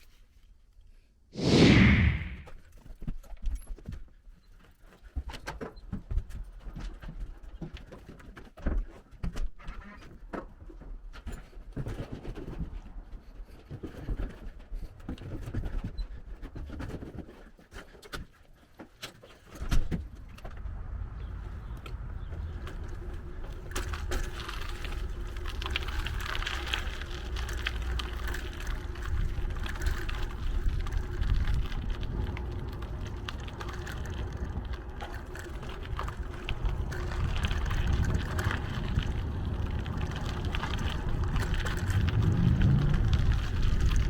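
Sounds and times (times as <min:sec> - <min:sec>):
bicycle tyre noise: 0:01.4 - 0:02.5, 0:20.6 - 0:44.0
wind rumbling on microphone: 0:01.4 - 0:02.5, 0:20.0 - 0:44.0
bike clicks and rattles: 0:21.6 - 0:44.0.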